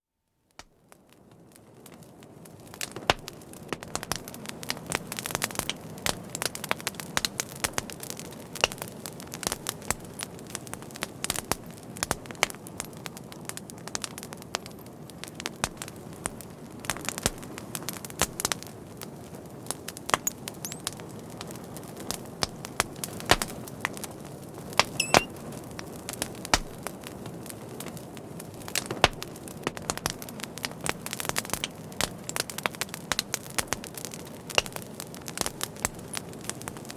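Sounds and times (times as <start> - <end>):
fire crackling and popping: 0.5 - 36.9
faint whistle: 25.0 - 25.3.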